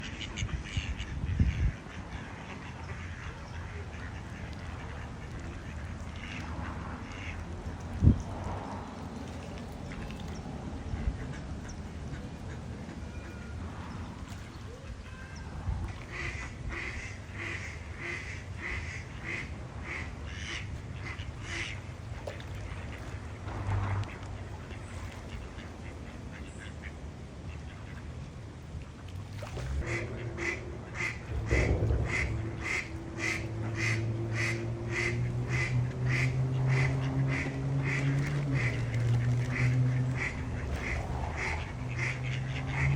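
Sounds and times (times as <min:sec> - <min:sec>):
ducks quacking: 0:00.0 - 0:07.8, 0:09.8 - 0:28.1, 0:29.8 - 0:42.9
low steady background rumble: 0:00.0 - 0:42.9
low thumps: 0:29.8 - 0:36.1.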